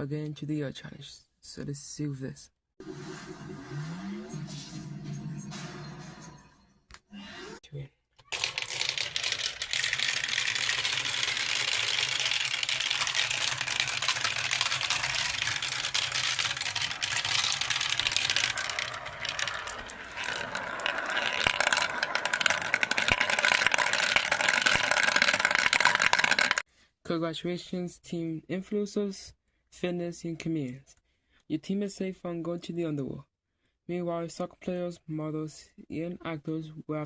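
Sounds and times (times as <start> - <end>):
dense rattling clicks: 8.3 - 26.6.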